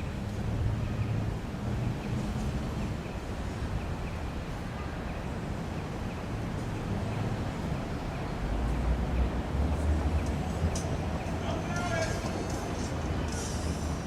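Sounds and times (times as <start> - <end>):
steady street hiss: 0.0 - 14.0.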